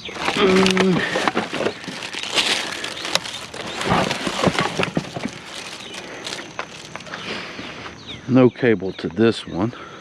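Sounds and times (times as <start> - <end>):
junk knocking and clattering: 0.1 - 6.7.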